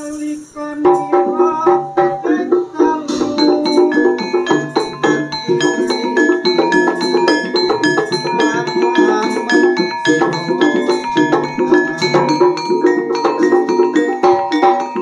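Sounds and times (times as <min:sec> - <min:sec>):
gamelan metallophones and gongs: 0:00.9 - 0:15.0.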